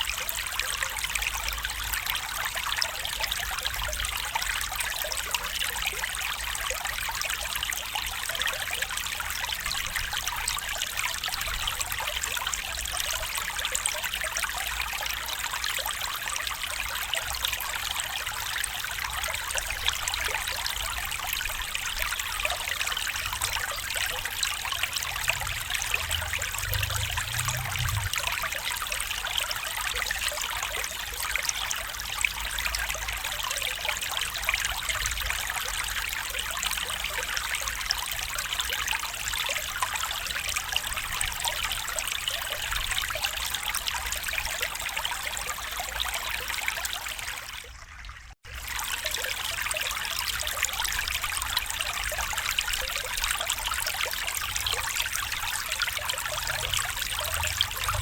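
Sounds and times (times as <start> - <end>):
stream trickling and babbling: 0.0 - 58.0.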